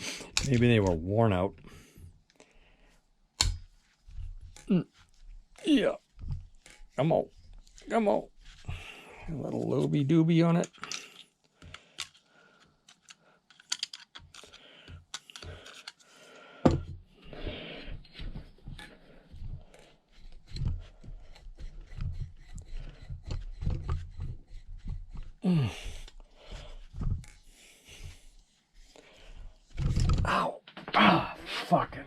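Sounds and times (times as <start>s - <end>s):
metal tools clicking and scraping: 10.6s - 11.4s, 12.9s - 16.0s.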